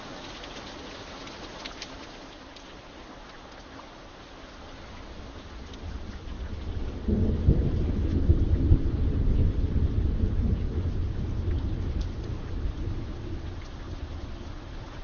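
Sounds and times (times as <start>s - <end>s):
steady rain: 0.0s - 15.0s
thunder rolling: 5.2s - 15.0s.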